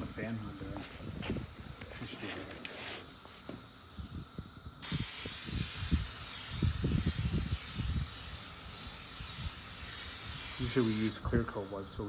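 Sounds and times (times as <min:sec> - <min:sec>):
aerosol spray hissing: 0:04.8 - 0:11.3.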